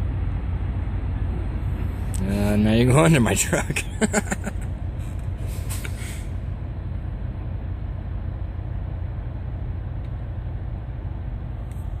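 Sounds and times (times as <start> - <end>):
diesel truck engines idling: 0.0 - 12.0.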